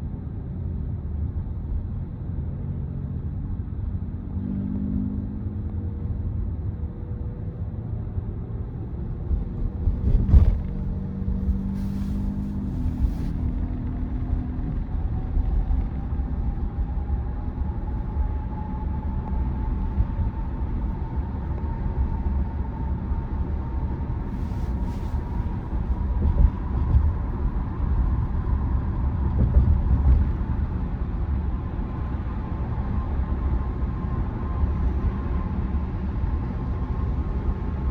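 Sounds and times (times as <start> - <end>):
road and tyre rumble: 0.0 - 37.9
tyre and road noise: 8.6 - 22.6.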